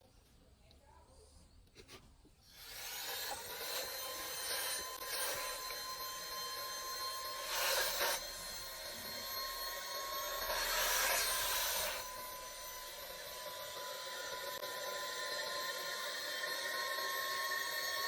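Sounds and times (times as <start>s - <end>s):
handheld vacuum motor whine: 2.5s - 18.0s.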